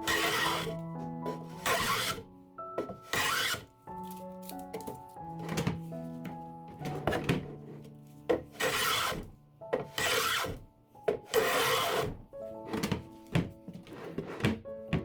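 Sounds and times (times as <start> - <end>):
drawer sliding on rails: 0.0 - 2.2, 2.8 - 3.7, 6.8 - 15.0
background music: 0.0 - 15.0.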